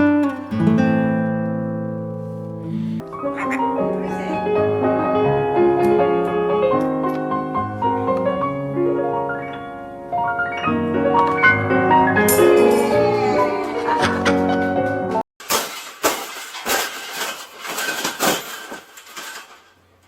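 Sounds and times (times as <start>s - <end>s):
piano background music: 0.0s - 13.9s.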